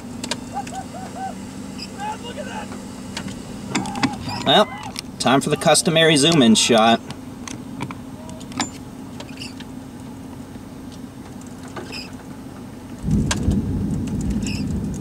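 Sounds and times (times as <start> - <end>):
idling vehicle hum: 0.0 - 15.0
loud low rumble: 13.0 - 15.0.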